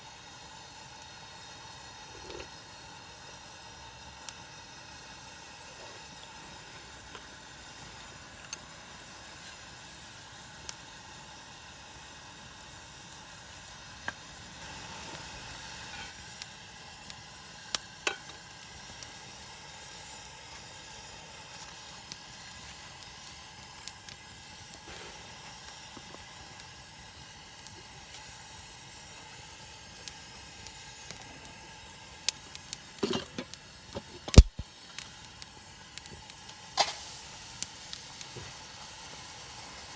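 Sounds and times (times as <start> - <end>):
food sizzling: 1.8 - 4.5, 5.5 - 26.6, 29.0 - 39.9
small crackles and clicks: 8.0 - 8.7, 21.4 - 26.7, 32.2 - 38.5.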